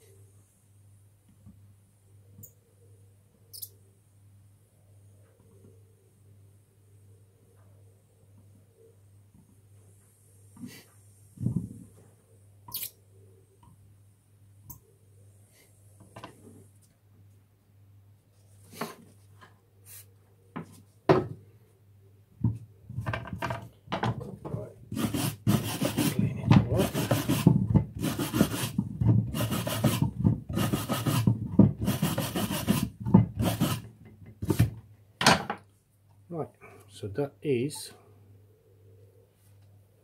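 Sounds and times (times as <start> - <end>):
hand tool filing lead: 24.9 - 33.8.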